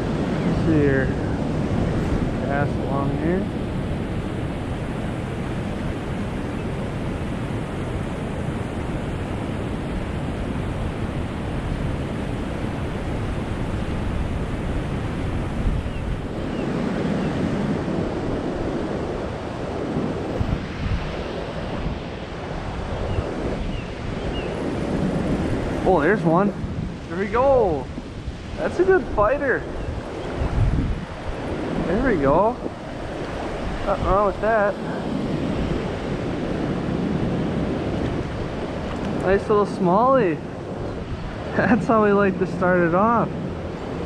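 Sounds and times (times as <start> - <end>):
steady low rushing noise: 0.0 - 6.4.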